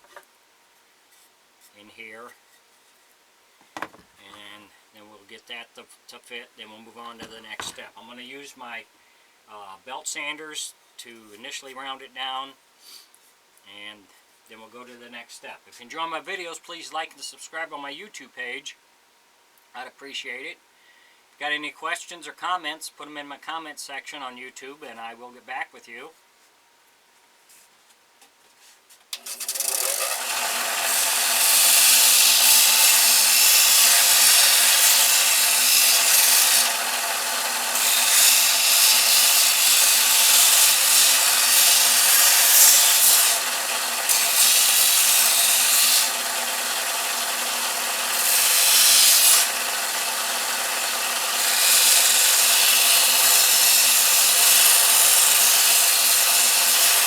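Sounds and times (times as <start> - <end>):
wood rasping on sanding belt: 7.1 - 7.8, 29.3 - 57.0
belt sander running: 29.3 - 57.0.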